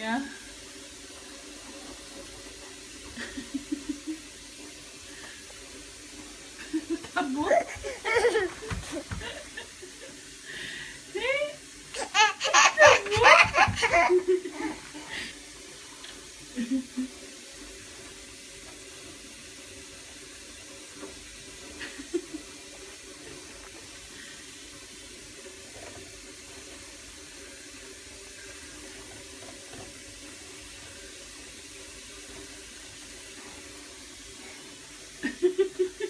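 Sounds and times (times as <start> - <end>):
running water: 0.0 - 36.0
faint knocks: 7.7 - 9.6.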